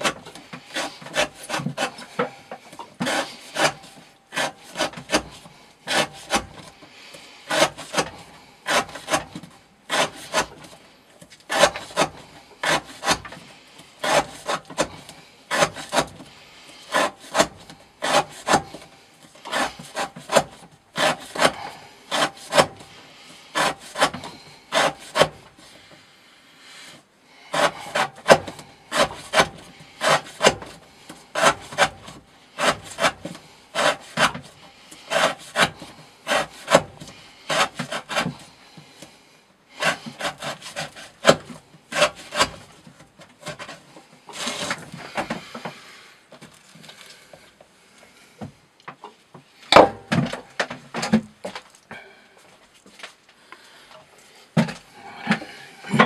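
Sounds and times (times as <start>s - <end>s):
knife slicing rope on wood: 0.0s - 6.8s, 7.5s - 16.3s, 16.9s - 25.7s, 27.5s - 38.6s, 39.8s - 45.6s.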